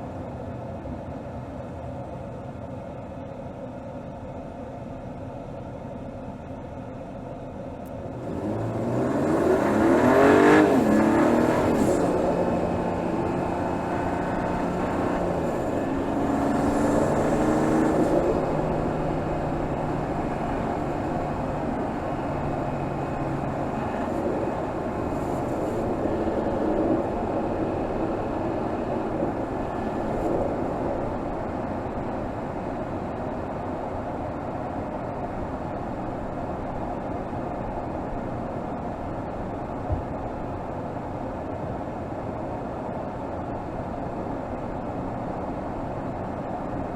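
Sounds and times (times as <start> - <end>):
car engine running: 7.8 - 42.6.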